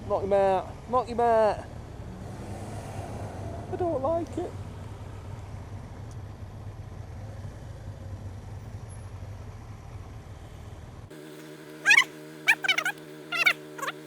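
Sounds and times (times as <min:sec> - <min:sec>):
motorcycle engine: 0:00.0 - 0:14.0
road rumble: 0:00.0 - 0:14.0
steady hum: 0:11.1 - 0:14.0
sharp warbling calls: 0:11.4 - 0:14.0.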